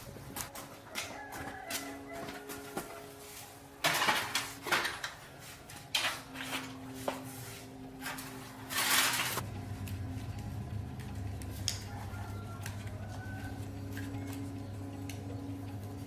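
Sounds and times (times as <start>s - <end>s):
hard objects clinking and scraping: 8.0s - 9.4s.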